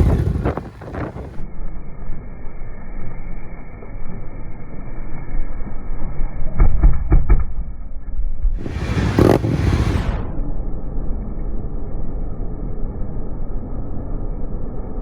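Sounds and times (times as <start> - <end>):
motorcycle engine revving: 0.0 - 1.4, 8.6 - 10.4.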